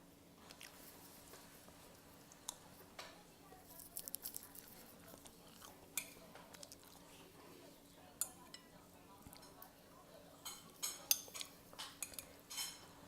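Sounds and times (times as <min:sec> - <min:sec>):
mouth chewing noodles: 0:00.4 - 0:02.7, 0:03.6 - 0:07.4.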